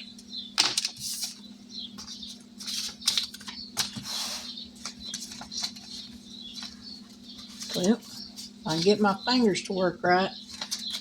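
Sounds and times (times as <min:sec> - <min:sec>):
steady low hum: 0:00.0 - 0:11.0
paper bills rustling: 0:02.0 - 0:09.1, 0:10.5 - 0:11.0.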